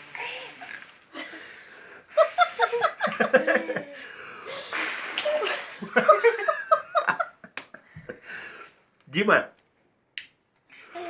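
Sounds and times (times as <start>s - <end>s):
person laughing: 2.2s - 4.0s.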